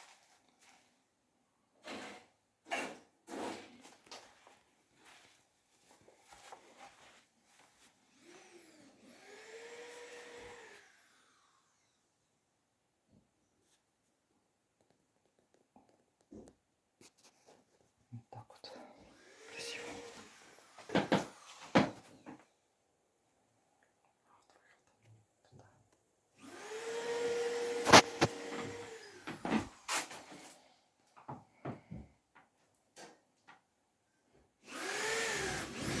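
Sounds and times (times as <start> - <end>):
small electric motor whining: 8.2 - 12.0, 19.1 - 21.7, 26.4 - 30.0, 34.7 - 36.0.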